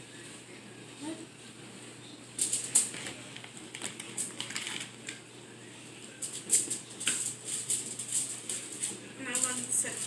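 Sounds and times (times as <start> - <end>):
crinkling and rustling by hands: 0.0 - 5.2.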